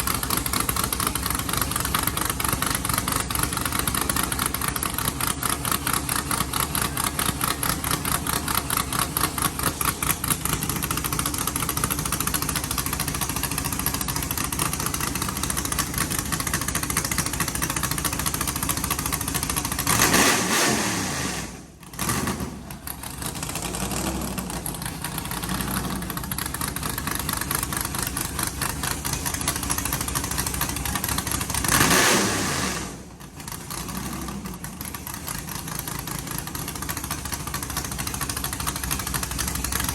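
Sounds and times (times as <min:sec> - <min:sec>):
car engine idling: 0:00.0 - 0:39.9
engine revving: 0:19.1 - 0:26.5, 0:29.1 - 0:35.2.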